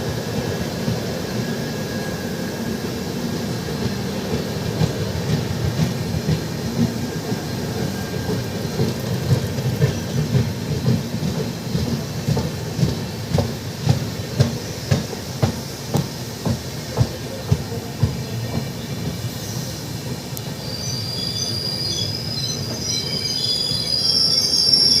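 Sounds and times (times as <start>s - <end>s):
train rumbling on track: 0.0s - 25.0s
high-pitched wheel squeal: 20.6s - 25.0s.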